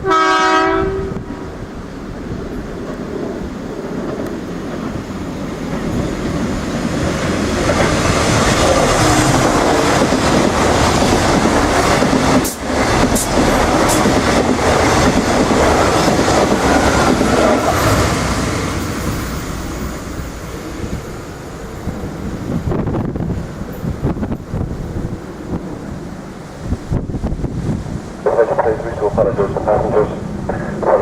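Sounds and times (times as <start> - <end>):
train wheel-and-rail noise: 0.0 - 31.0.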